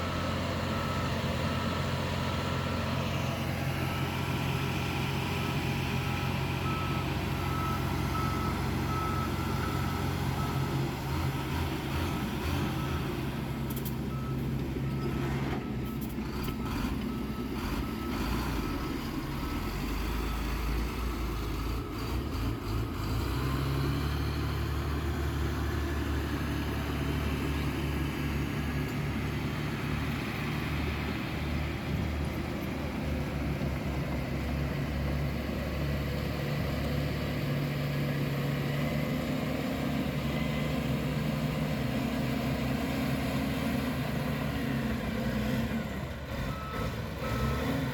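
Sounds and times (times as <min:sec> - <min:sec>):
diesel construction machine running: 0:00.0 - 0:47.9
reversing alarm beeping: 0:03.6 - 0:11.4.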